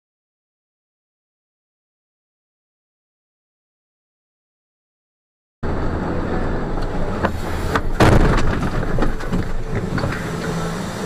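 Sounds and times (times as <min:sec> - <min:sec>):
vehicle engine running: 0:05.6 - 0:11.0
knocks and rattles: 0:07.8 - 0:10.7
loud crash impact: 0:07.9 - 0:09.3.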